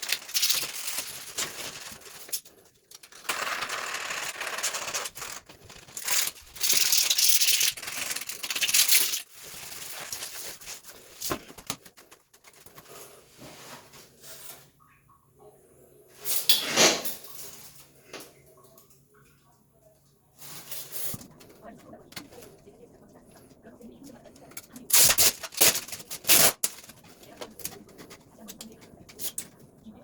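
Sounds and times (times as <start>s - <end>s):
rough scraping and rustling: 4.4s - 14.4s.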